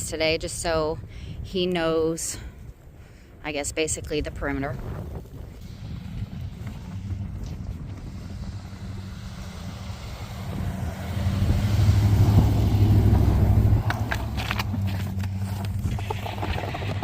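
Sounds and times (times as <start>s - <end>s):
truck engine humming: 5.2s - 17.0s.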